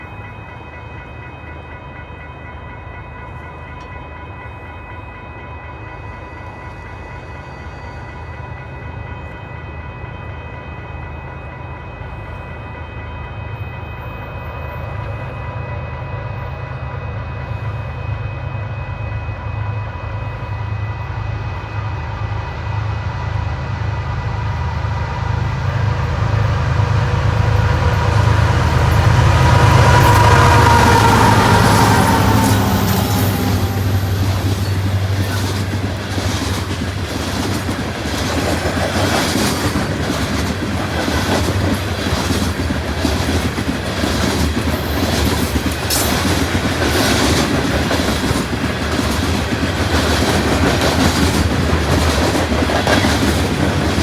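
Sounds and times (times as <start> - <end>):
diesel locomotive engine rumble: 6.5 - 54.0.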